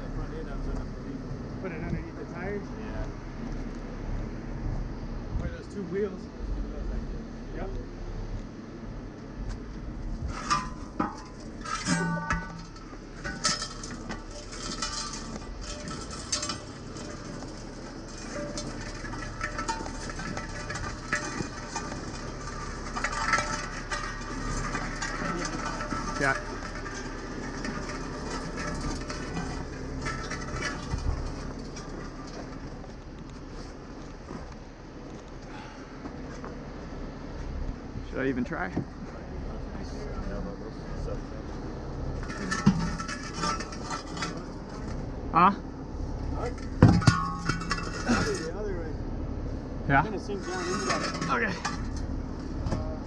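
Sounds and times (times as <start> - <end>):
diesel engine rumbling: 0.0 - 53.0
metal towing gear clanking: 10.1 - 33.7, 42.1 - 45.1, 46.1 - 48.6, 49.9 - 53.0.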